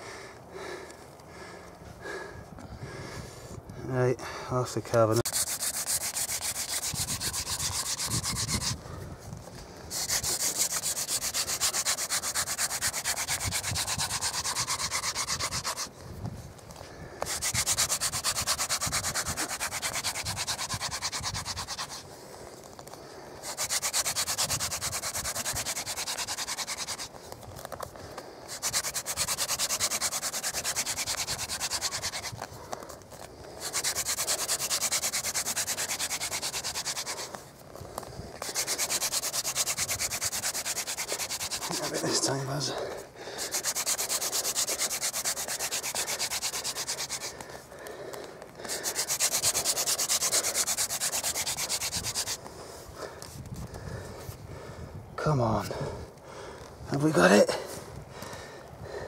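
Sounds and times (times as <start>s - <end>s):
wooden spindle grinding on wood: 5.2s - 8.8s, 9.9s - 15.9s, 17.2s - 22.1s, 22.7s - 27.9s, 28.5s - 42.8s, 43.4s - 52.5s.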